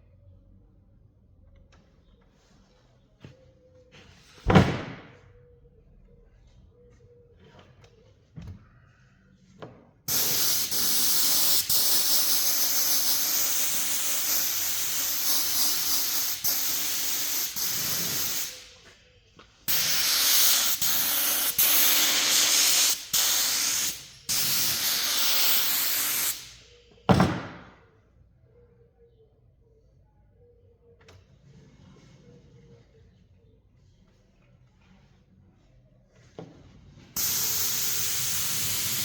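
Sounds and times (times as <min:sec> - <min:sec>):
compressed air hissing: 0:10.1 - 0:18.8, 0:19.7 - 0:26.6, 0:37.2 - 0:39.0
sharp bang: 0:27.1 - 0:27.8.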